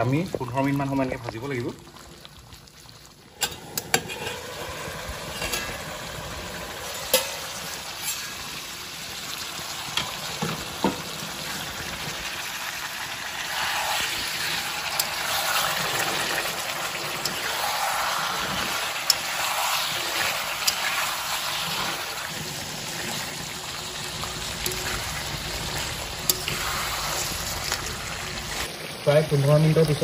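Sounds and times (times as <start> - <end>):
curry sizzling in a pan: 0.0 - 30.0
metal spatula scraping pan: 3.4 - 4.6, 5.2 - 6.0, 7.1 - 8.6, 13.5 - 28.7.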